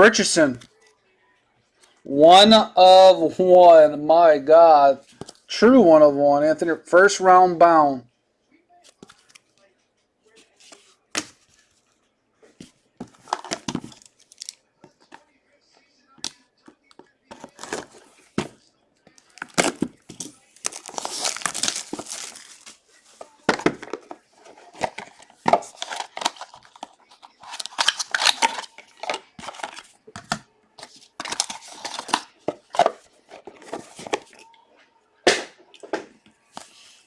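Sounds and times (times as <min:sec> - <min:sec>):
card wrappers tearing and crinkling: 0:13.1 - 0:14.6, 0:17.3 - 0:18.4, 0:19.2 - 0:34.4.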